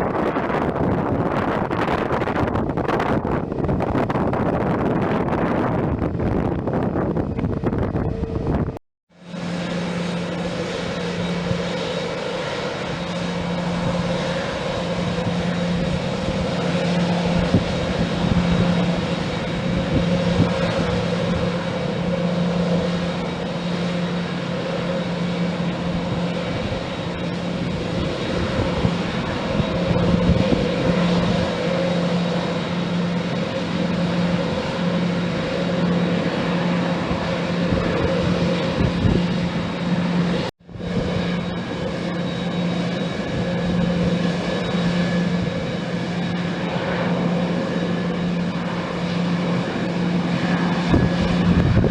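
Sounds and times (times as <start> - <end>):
aircraft engines droning: 0.0 - 51.9.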